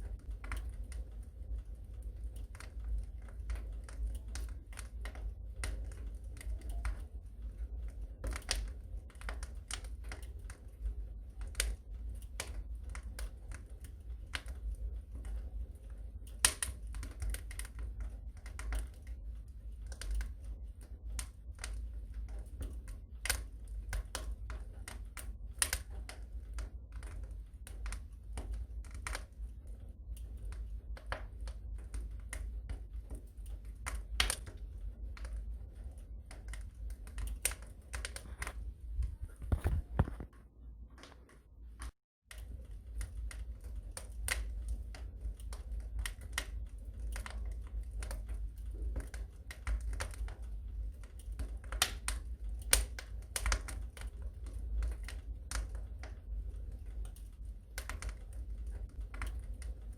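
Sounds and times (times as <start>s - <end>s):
low steady rumble: 0.0s - 59.9s
wood fire crackling: 0.0s - 59.9s.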